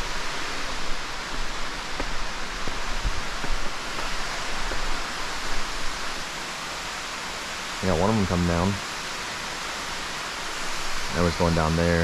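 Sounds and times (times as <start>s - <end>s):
underground waterfall rushing: 0.0s - 12.0s.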